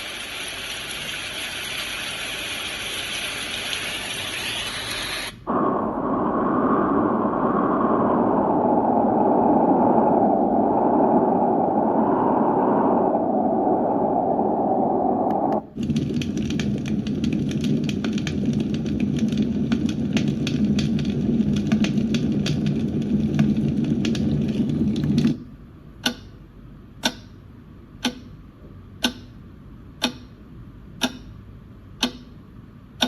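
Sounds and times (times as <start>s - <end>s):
dense crackling: 5.4s - 25.3s
deep muffled noise: 5.5s - 25.4s
low rumble: 5.5s - 25.6s.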